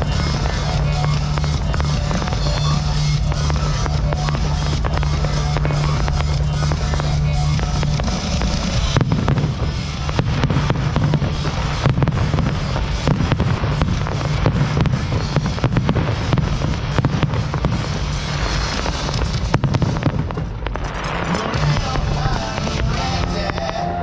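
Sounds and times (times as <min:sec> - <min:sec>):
fireworks bangs and crackles: 0:00.0 - 0:24.0
music playing: 0:00.0 - 0:24.0.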